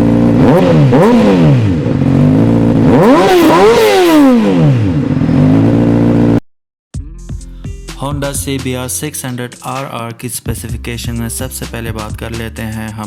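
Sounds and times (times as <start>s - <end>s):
motorcycle engine idling and revving: 0.0s - 6.4s.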